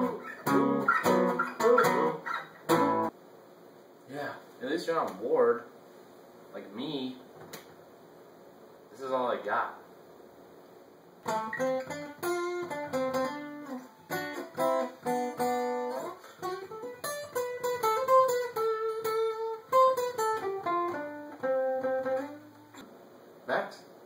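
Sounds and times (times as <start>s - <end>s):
guitar plucked: 0.0s - 3.1s, 11.2s - 22.8s.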